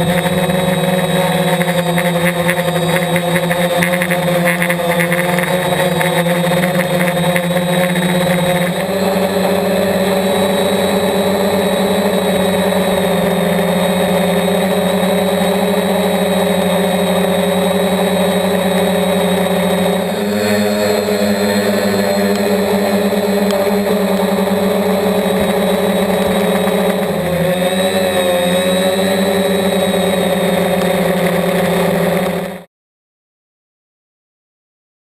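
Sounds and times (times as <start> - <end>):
drone propellers whining: 0.0 - 32.7.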